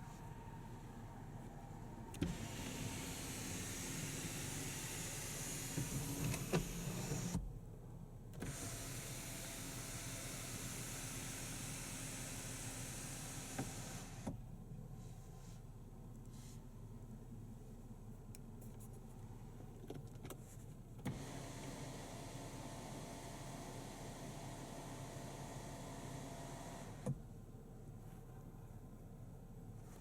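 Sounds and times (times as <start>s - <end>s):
power window motor whirring: 2.1s - 7.5s, 8.4s - 14.4s, 21.0s - 27.2s.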